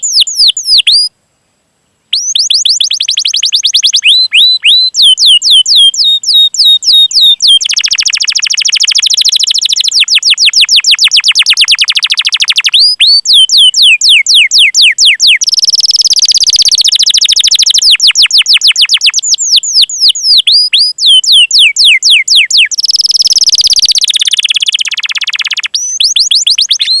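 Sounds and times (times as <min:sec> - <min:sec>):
canary chirps: 0:00.0 - 0:01.1, 0:02.1 - 0:27.0
canary fast rolling trills: 0:20.3 - 0:27.0.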